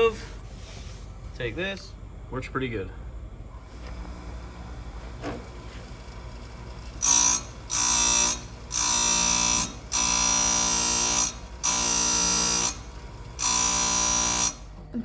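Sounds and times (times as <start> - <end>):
chain sharpener grinding: 5.0 - 14.8.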